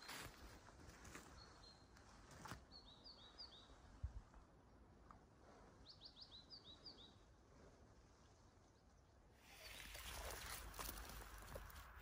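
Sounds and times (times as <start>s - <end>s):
small birds chirping: 0.0s - 4.0s, 5.7s - 7.4s, 8.2s - 11.7s.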